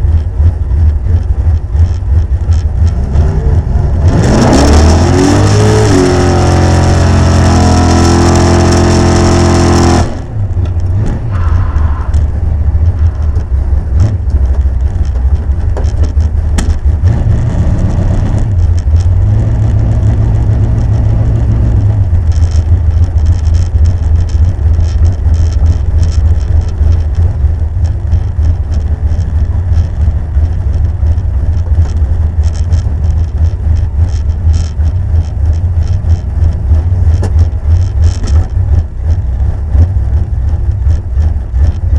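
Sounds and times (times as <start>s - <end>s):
car engine at full throttle: 0.0s - 41.9s
engine crackles: 0.0s - 41.9s
engine rough low rumble: 0.0s - 41.9s.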